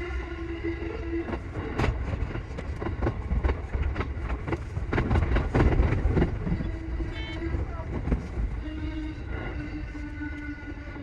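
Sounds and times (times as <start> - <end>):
electric train rumbling: 0.0 - 11.0
wheels clicking over rail joints: 1.3 - 8.5.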